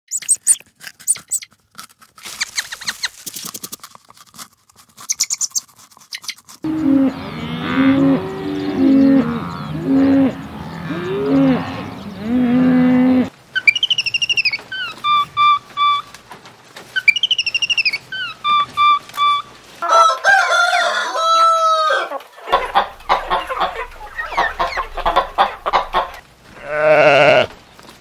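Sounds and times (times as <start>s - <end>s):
rabbit chewing food: 0.1s - 6.7s
cattle mooing: 6.6s - 13.3s, 24.4s - 27.5s.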